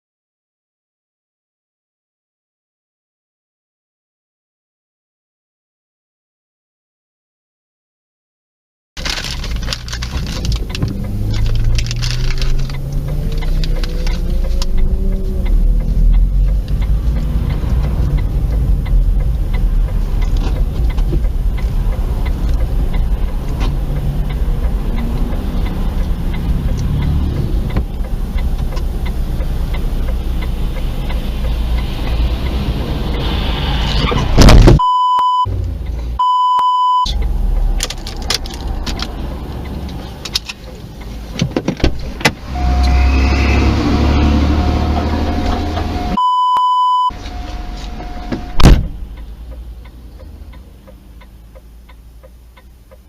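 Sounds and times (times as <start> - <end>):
car road and engine rumble: 9.0 - 53.0
short electronic bleeps: 34.8 - 35.5, 36.2 - 37.2, 42.5 - 43.6, 44.4 - 48.7
steady electronic tone: 42.5 - 48.8.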